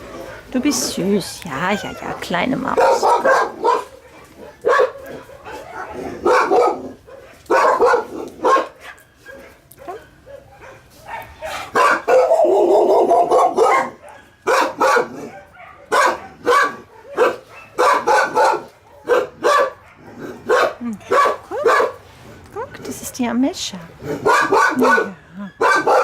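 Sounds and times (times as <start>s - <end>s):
dog barking: 2.7s - 22.0s, 24.1s - 26.0s.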